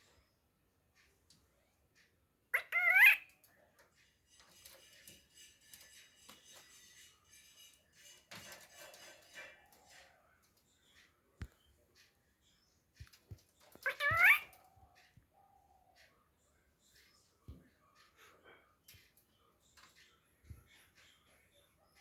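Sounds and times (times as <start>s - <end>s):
parrot squawk: 2.6s - 3.3s, 13.8s - 14.6s
parrot scratchy chatter: 2.6s - 3.5s, 4.1s - 10.1s, 13.6s - 14.7s.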